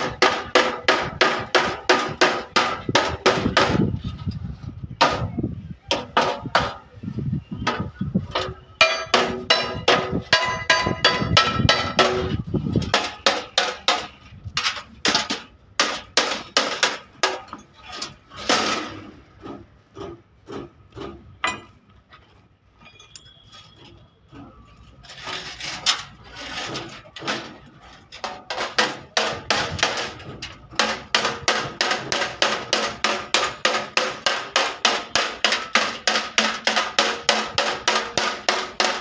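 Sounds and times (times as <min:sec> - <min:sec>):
hammer blows on sheet metal: 0:00.0 - 0:04.1, 0:04.9 - 0:06.9, 0:07.6 - 0:17.6, 0:28.2 - 0:39.0.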